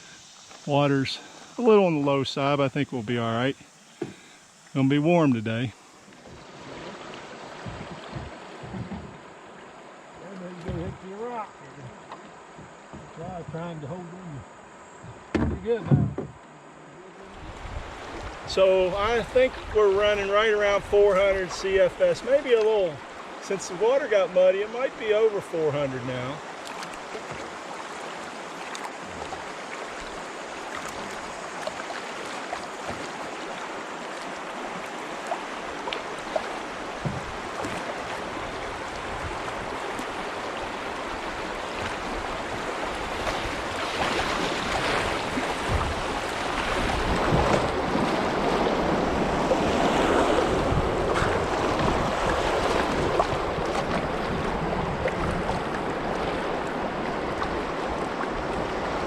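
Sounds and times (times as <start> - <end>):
river water rushing around boat: 0.0 - 59.0
faint knocks: 7.6 - 9.2, 10.6 - 11.1.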